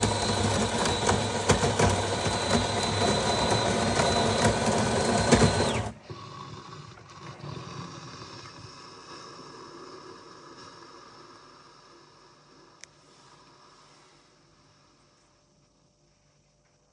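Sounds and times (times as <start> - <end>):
coffee machine motor humming: 0.0 - 7.5.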